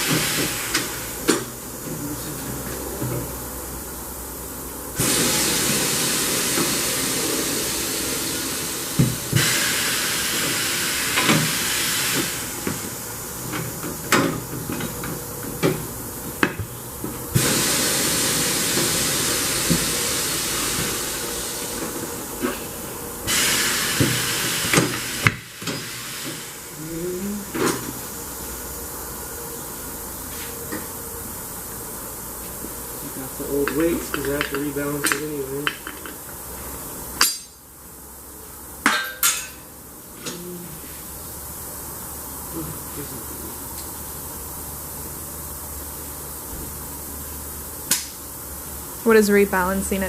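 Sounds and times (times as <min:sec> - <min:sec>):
compressed air hissing: 0:00.0 - 0:01.8, 0:04.9 - 0:30.8.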